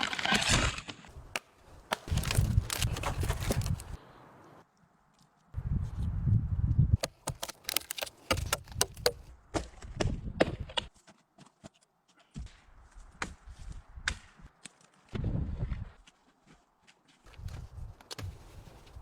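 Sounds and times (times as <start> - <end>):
wood cracking and knocking: 1.9 - 4.0, 7.0 - 10.9.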